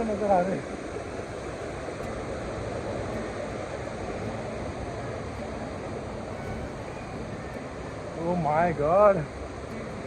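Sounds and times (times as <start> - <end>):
mountain stream rushing: 0.0 - 10.0.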